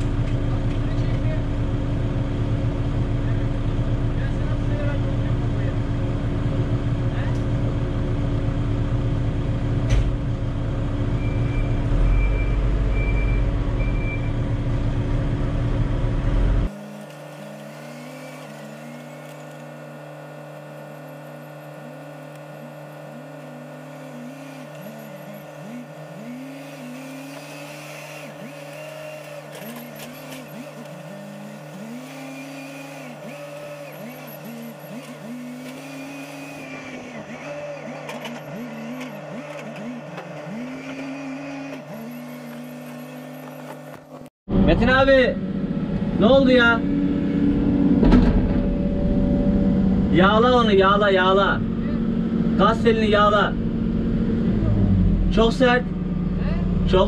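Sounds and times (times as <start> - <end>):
excavator diesel engine: 0.0 - 57.0
short beeps: 11.2 - 14.5.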